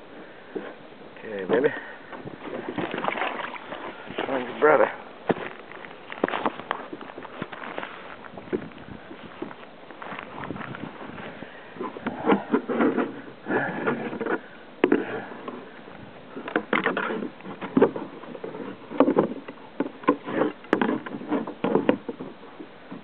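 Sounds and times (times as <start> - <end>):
knocking and scraping on kayak: 0.4 - 23.0.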